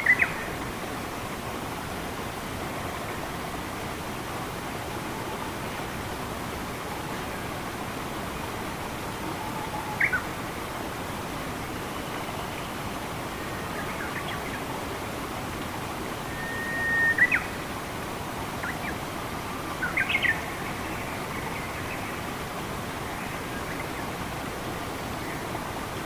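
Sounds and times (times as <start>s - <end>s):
running water rushing: 0.0s - 26.0s
birds whistling and chirping: 16.3s - 17.5s.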